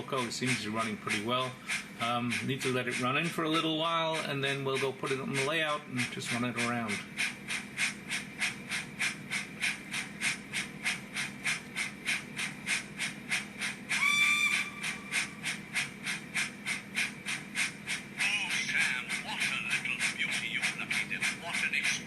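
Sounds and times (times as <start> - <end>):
steam exhaust chuffs: 0.0 - 22.0
train whistle blast: 14.0 - 15.0.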